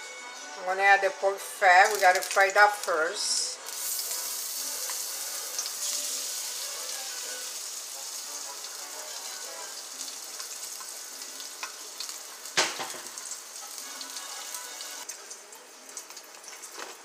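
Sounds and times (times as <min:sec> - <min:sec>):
fat sizzling in hot oil: 0:01.6 - 0:17.0.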